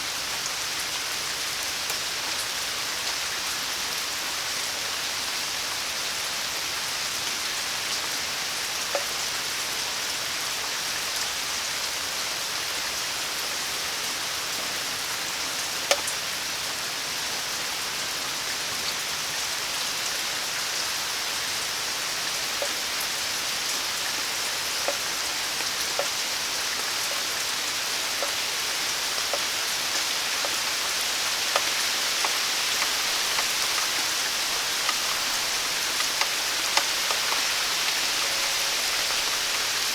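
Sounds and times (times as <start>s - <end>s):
rain falling on surfaces: 0.0s - 39.9s
sharp water drip: 15.9s - 16.2s, 22.6s - 39.9s.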